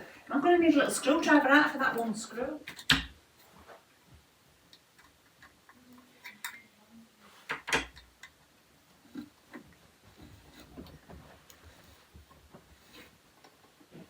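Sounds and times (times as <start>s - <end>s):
metal parts clicking and tapping: 2.7s - 3.2s, 4.7s - 6.7s.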